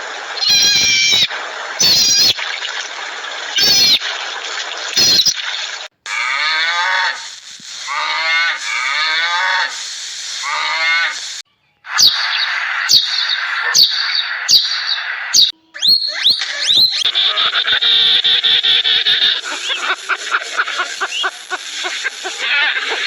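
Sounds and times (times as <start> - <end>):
high chirps: 0.4 - 2.4, 3.6 - 4.0, 5.0 - 5.4, 11.9 - 19.9.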